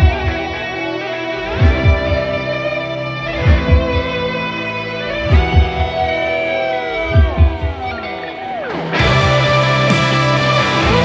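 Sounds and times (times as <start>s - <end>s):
low heartbeat-like drum beat: 0.0s - 0.6s, 1.4s - 2.4s, 3.3s - 4.3s, 5.1s - 6.2s, 7.0s - 8.0s, 9.0s - 11.0s.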